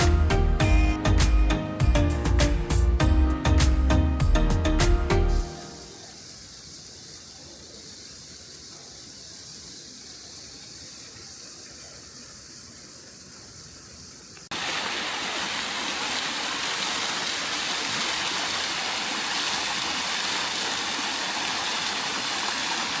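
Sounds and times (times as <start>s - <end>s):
faint hiss: 0.0s - 23.0s
rushing water: 14.5s - 23.0s.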